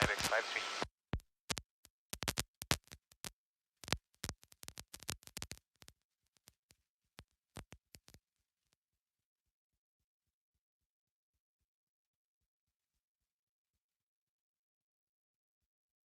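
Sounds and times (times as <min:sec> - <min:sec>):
radio clicks and crackles: 0:00.0 - 0:00.9, 0:01.5 - 0:06.0.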